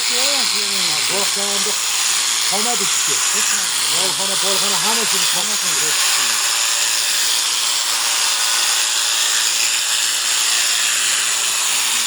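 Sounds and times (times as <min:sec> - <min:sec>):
electric shears buzzing: 0:00.0 - 0:12.0.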